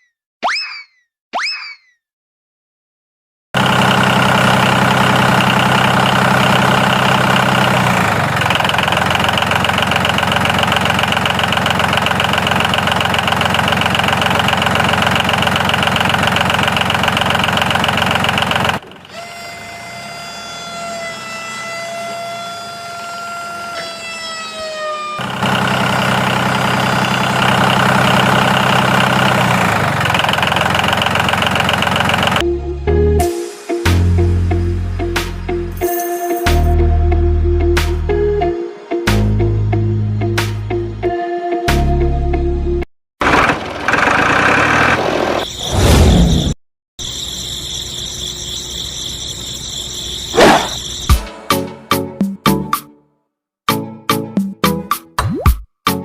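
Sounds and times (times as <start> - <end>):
tractor engine idling: 3.6 - 19.7, 25.2 - 32.4, 43.2 - 45.4.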